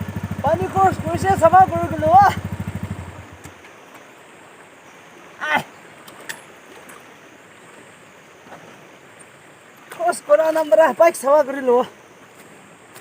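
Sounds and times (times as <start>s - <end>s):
motorbike engine: 0.0s - 3.6s
stream water rushing: 0.0s - 13.0s.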